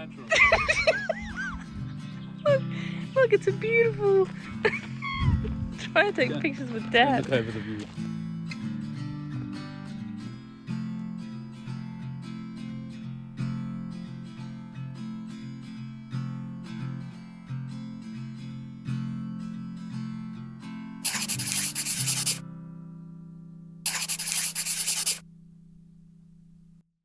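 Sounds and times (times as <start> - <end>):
acoustic guitar picking a melody: 0.0 - 24.9
scratchy rushing noise: 21.0 - 22.4, 23.9 - 25.2.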